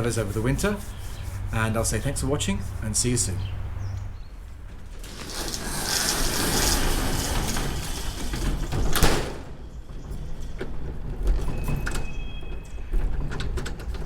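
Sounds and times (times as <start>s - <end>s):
door sliding shut with bang: 4.8s - 13.9s.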